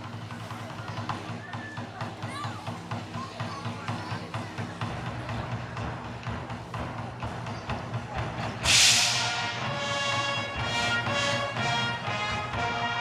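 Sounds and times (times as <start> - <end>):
loud cymbal crash: 8.6 - 11.4
wind band playing chords: 8.6 - 13.0.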